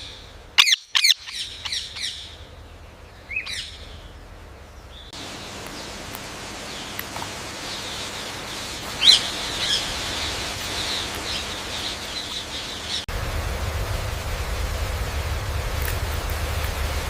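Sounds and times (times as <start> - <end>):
parrot calling: 0.0 - 2.4, 5.2 - 13.1
low rushing noise: 2.3 - 17.0.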